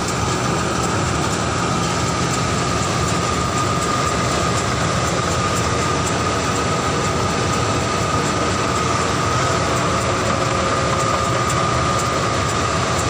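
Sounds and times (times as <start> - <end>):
harvester machinery drone: 0.0 - 13.0
steady high whine: 0.0 - 13.0.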